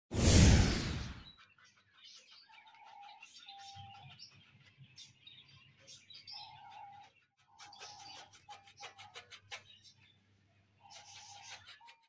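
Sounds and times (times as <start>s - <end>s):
small birds chirping and twittering: 0.7s - 12.0s.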